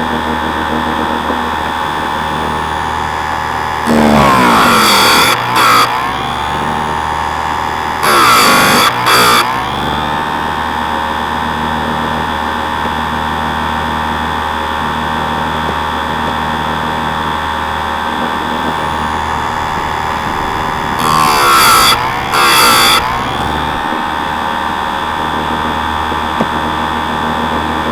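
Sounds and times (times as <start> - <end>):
chainsaw sharpener motor running: 0.0 - 27.9
grinding wheel on chain tooth: 18.8 - 25.0.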